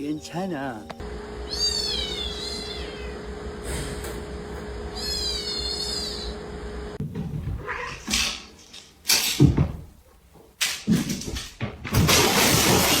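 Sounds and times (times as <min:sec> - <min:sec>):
cat making harsh sounds: 0:05.0 - 0:06.3, 0:07.6 - 0:08.1.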